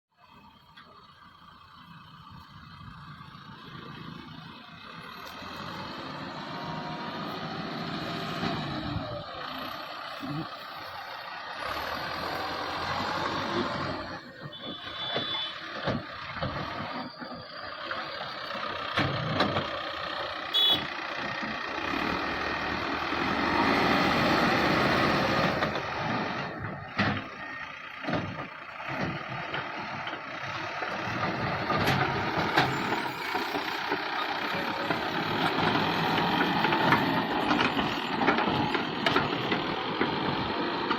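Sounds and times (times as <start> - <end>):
tractor engine running under load: 0.2 - 40.9.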